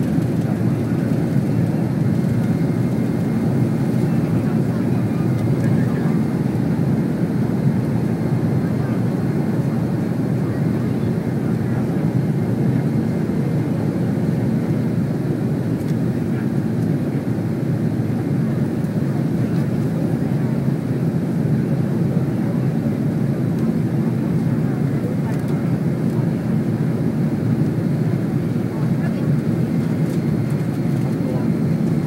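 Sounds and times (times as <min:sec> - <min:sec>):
airliner engines and airflow: 0:00.0 - 0:32.0.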